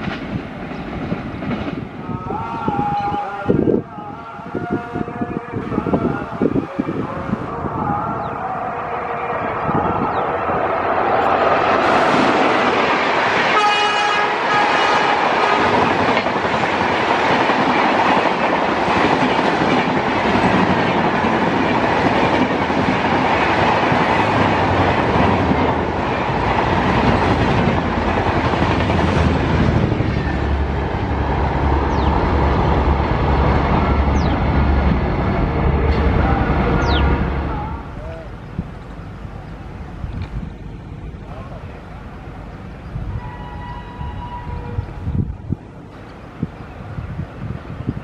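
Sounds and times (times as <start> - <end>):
train coaches rushing past: 0.0 - 48.0
train horn: 13.5 - 15.9, 43.1 - 45.0.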